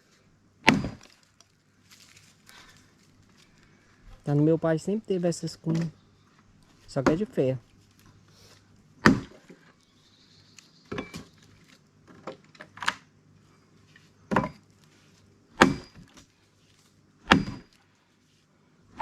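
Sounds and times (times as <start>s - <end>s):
axe striking log: 0.6s - 1.2s, 9.0s - 9.5s, 14.3s - 14.6s, 15.5s - 16.3s, 17.2s - 17.8s.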